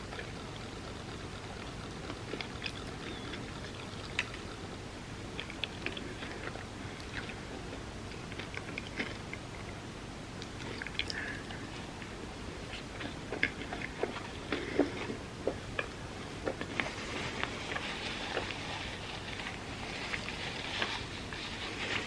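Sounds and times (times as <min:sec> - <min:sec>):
soft rustling hiss: 0:00.0 - 0:22.0
chewing and wet mouth clicks: 0:00.1 - 0:04.6, 0:05.4 - 0:07.4, 0:08.1 - 0:09.8, 0:10.4 - 0:12.1, 0:12.9 - 0:16.8.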